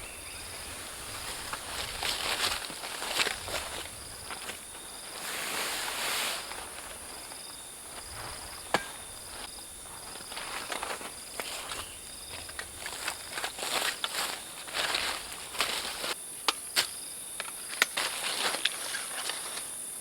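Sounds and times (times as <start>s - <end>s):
rustling: 0.0s - 16.2s
high insect drone: 0.0s - 20.0s
insects chirping in trills: 0.0s - 20.0s.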